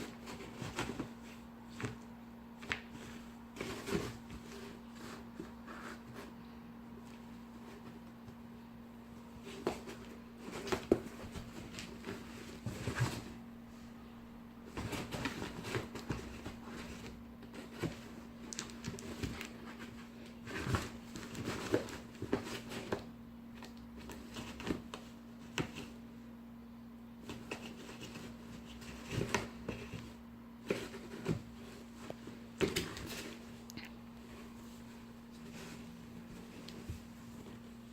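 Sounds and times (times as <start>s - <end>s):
cats scratching cardboard: 0.0s - 6.4s, 9.2s - 13.4s, 14.7s - 26.0s, 27.2s - 33.6s
steady low hum: 0.0s - 37.9s.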